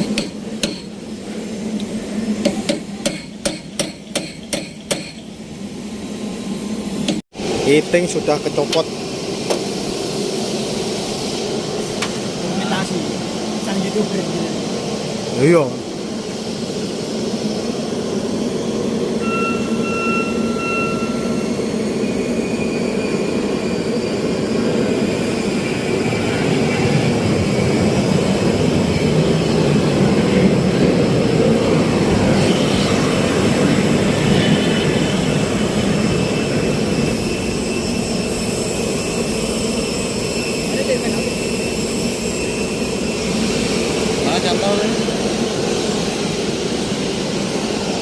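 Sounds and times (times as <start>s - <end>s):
loud mechanical noise with whining: 0.0s - 48.0s
short steady tones: 19.2s - 22.8s.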